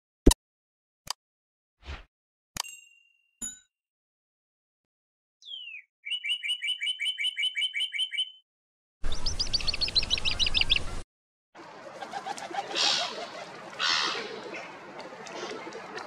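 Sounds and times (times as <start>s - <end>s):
bird chirps: 5.4s - 8.4s, 9.0s - 11.0s
bird trill: 5.4s - 8.4s, 9.0s - 11.0s
outdoor background noise: 11.6s - 16.0s.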